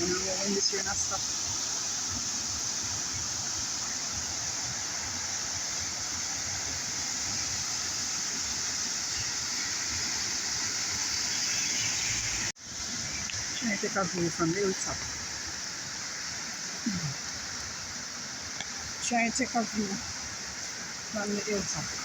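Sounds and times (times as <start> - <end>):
water rushing: 0.0 - 22.0.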